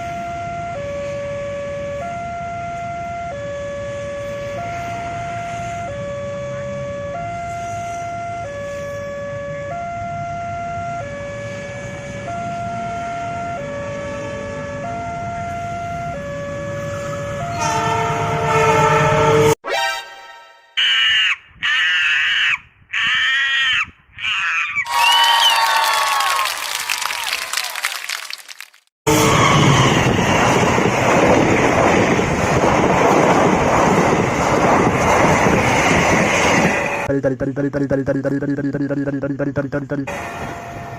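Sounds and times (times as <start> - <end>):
two-tone hi-lo siren: 0.0 - 20.8, 29.1 - 31.5, 40.1 - 40.9
train passing close by: 3.8 - 6.9, 11.4 - 19.6, 29.1 - 37.1, 40.1 - 40.9
multi-note train horn: 16.8 - 20.7, 29.1 - 30.2
train rumbling: 29.1 - 40.9
wind buffeting microphone: 29.6 - 36.8.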